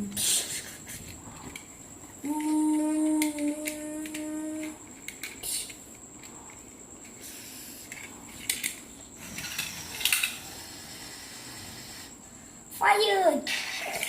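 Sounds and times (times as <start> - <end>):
plastic toys clicking and clattering: 1.4 - 7.2, 7.8 - 10.4, 13.5 - 14.0
toy rattle: 1.6 - 10.6, 13.5 - 14.0
child humming engine tone: 2.2 - 4.9.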